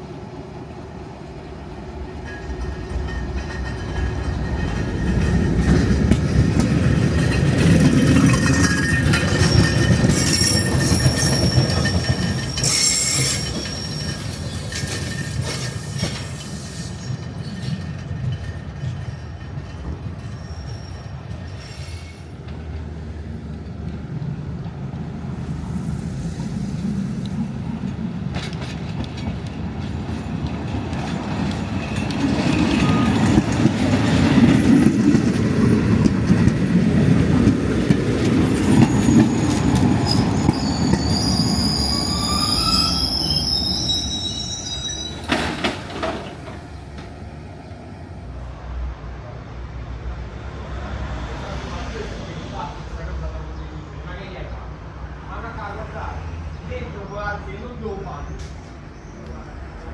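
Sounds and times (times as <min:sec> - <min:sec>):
tram rumbling on rails: 0:00.0 - 0:59.9
wheels squealing: 0:02.3 - 0:22.4, 0:25.4 - 0:36.6, 0:37.4 - 0:48.1.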